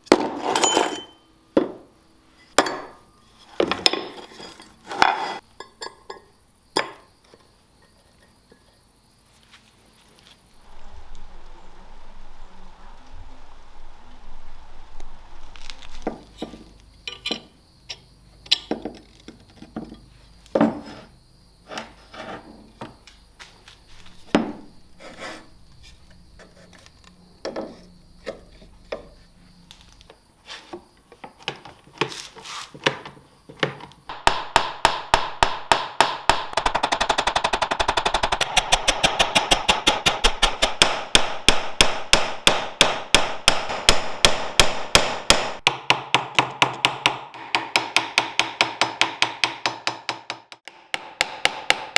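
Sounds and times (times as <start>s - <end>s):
hammer strikes: 34.1s - 51.9s.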